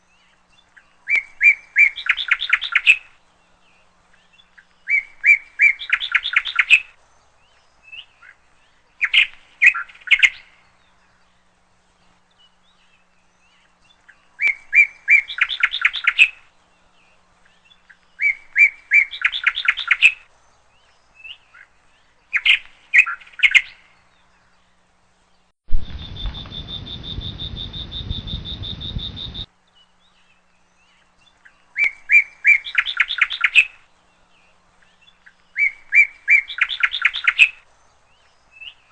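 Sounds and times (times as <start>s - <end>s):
chipmunk chirping: 25.9s - 29.5s.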